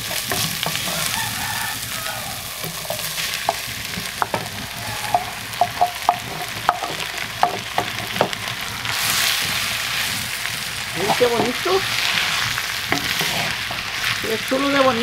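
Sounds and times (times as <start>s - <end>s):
onion sizzling in hot oil: 0.0s - 15.0s
spoon scraping a clay plate: 2.6s - 7.1s, 11.0s - 14.0s
wooden spoon knocking on clay: 2.6s - 8.4s.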